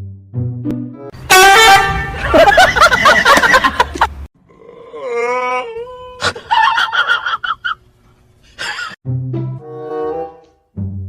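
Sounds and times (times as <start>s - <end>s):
music with low held notes: 9.0s - 11.0s.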